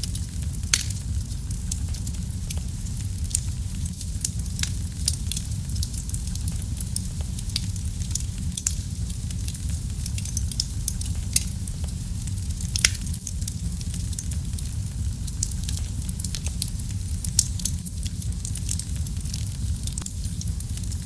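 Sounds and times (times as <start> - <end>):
wood fire crackling in fireplace: 0.0 - 21.0.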